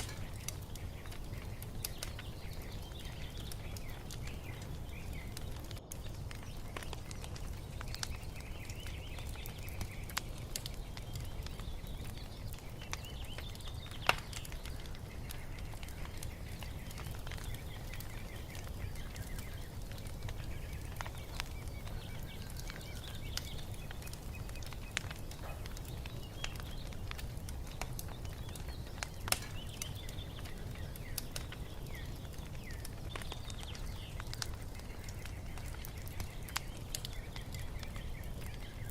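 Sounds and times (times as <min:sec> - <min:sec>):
birds chirping and singing: 0:00.0 - 0:38.9
wood fire crackling and popping: 0:00.0 - 0:38.9.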